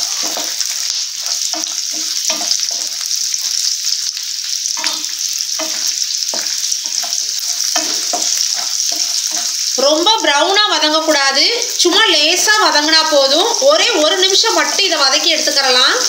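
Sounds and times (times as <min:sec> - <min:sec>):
wooden spatula scraping a pan: 0:00.0 - 0:03.7, 0:04.8 - 0:09.6
garlic sizzling in hot oil: 0:00.0 - 0:16.0.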